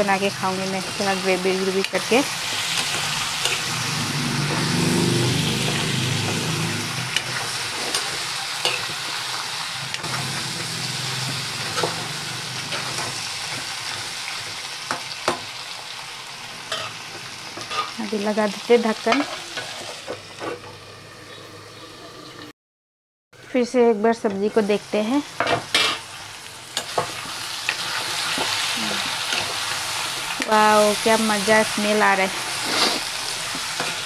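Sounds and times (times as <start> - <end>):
food sizzling in hot oil: 0.0 - 22.4, 24.2 - 34.0
spatula scraping pan: 16.7 - 18.0, 19.1 - 20.7, 32.2 - 34.0.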